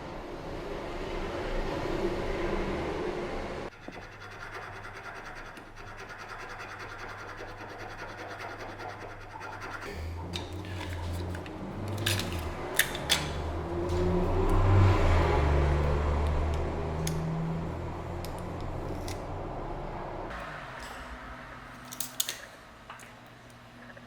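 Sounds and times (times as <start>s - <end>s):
low hum: 9.9s - 21.9s.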